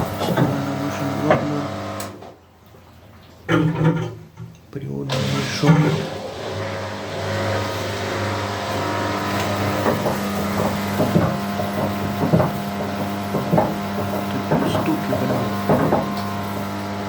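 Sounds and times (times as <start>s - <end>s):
washing machine motor hum: 0.0s - 2.4s, 5.1s - 17.0s
drum knocking: 9.8s - 16.3s.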